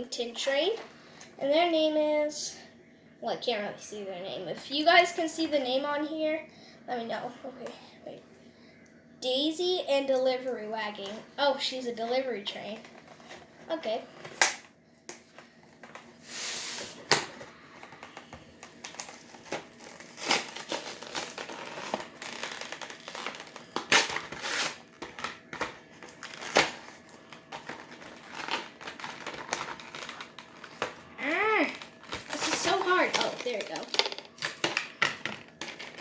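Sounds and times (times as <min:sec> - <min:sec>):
packaging crinkling: 0:17.0 - 0:36.0.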